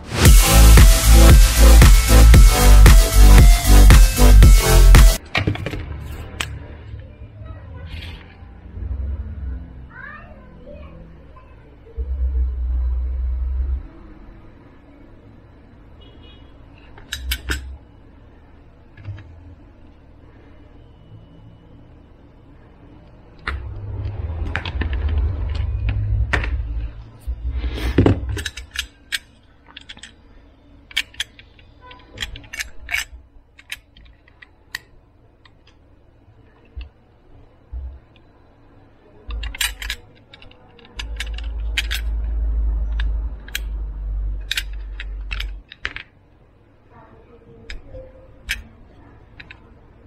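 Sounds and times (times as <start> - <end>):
small hard parts clicking: 16.8 - 17.7, 28.2 - 30.3, 30.9 - 35.8, 39.3 - 46.2
low handling rumble: 23.4 - 28.3.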